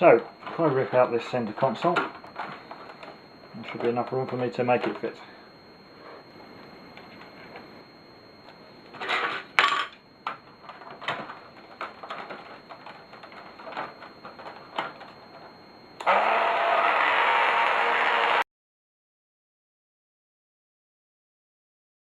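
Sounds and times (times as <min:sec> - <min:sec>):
plastic parts clicking and knocking: 0:10.2 - 0:15.2
small power tool cutting plastic: 0:16.0 - 0:18.5.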